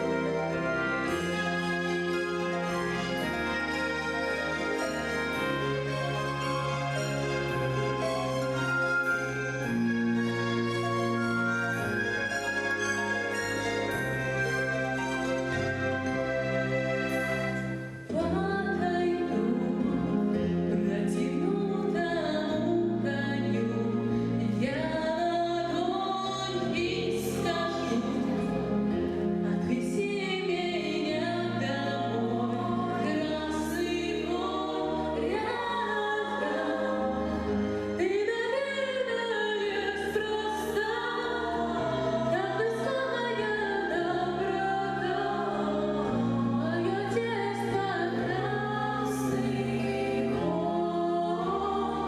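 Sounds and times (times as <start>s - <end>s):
children singing with instruments: 29.6s - 37.6s, 39.6s - 52.0s.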